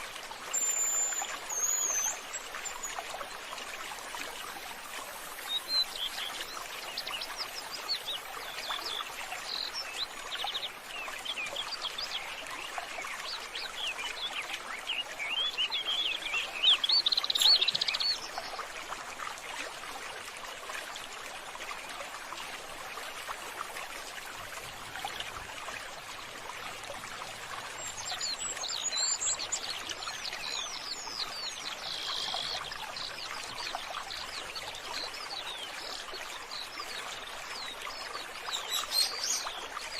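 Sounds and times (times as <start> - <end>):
running water: 0.0 - 39.9
birds chirping: 13.6 - 18.5, 24.3 - 35.7.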